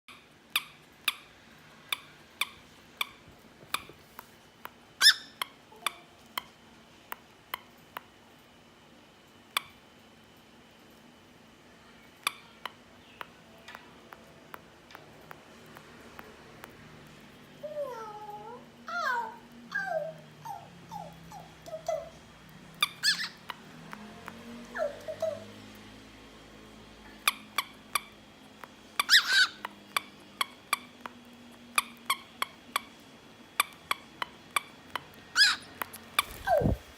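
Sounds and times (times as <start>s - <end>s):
cockatiel whistling: 35.4s - 36.9s.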